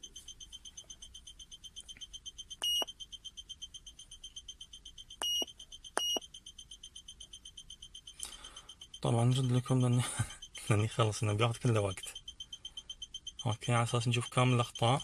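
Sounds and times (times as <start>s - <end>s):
fast short high beeps: 0.0s - 15.0s
longer louder beeps: 0.0s - 15.0s.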